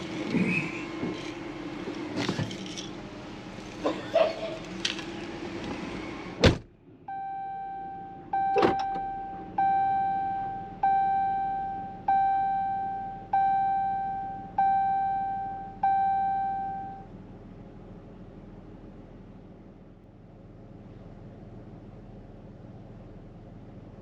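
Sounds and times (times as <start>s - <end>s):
car door shutting: 6.4s - 6.7s, 8.4s - 9.2s
car warning chime dinging: 7.1s - 17.1s.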